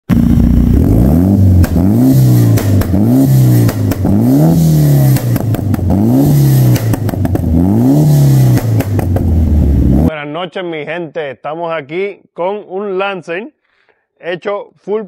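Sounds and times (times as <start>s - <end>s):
car engine revving: 0.1s - 10.1s
exhaust pops and cracks: 1.6s - 4.3s, 5.0s - 6.0s, 6.6s - 7.6s, 8.4s - 9.4s.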